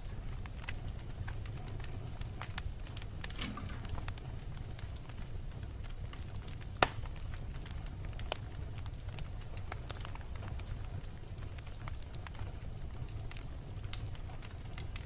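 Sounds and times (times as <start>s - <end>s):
wood fire crackling: 0.0s - 15.0s
loud fire pop: 3.3s - 4.1s.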